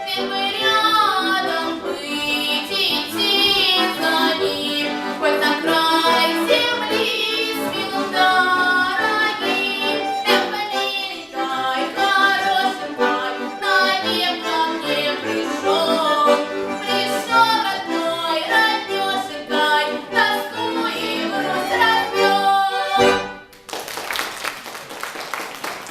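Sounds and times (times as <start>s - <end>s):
girl singing folk song: 0.0s - 23.2s
accordion chords: 0.0s - 23.6s
people clapping: 23.5s - 25.9s.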